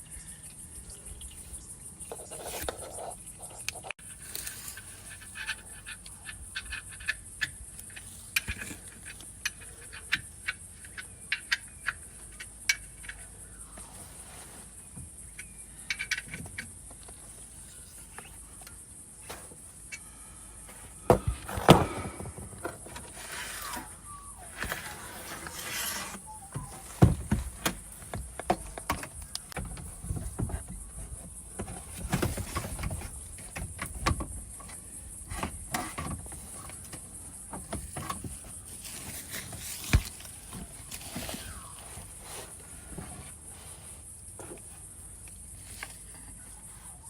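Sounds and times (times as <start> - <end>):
hand tools clicking and tapping: 15.3 - 17.2.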